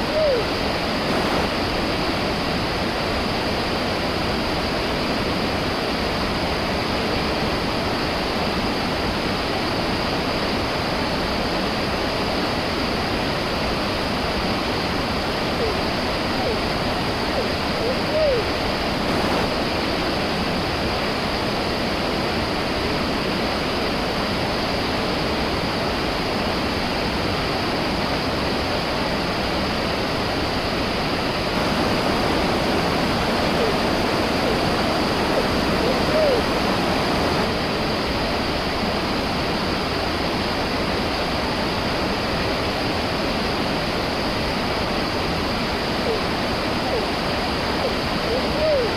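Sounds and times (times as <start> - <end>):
waterfall roar: 0.0 - 48.9.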